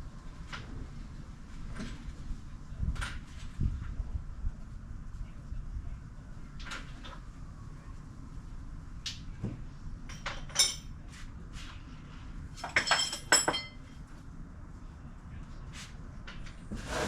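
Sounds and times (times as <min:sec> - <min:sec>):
metal tools clinking and clattering: 0:10.1 - 0:10.9, 0:12.6 - 0:13.8.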